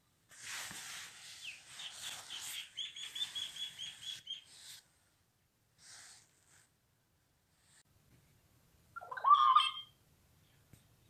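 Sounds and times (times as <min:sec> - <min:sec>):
bird high rapid chirps: 0:01.3 - 0:04.7, 0:09.0 - 0:10.0.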